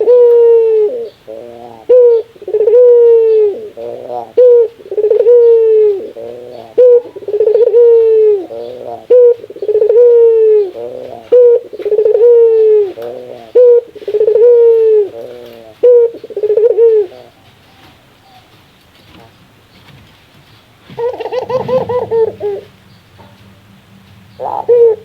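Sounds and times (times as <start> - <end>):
dove laughing coo: 0.0 - 17.4, 21.0 - 22.7, 24.4 - 25.0.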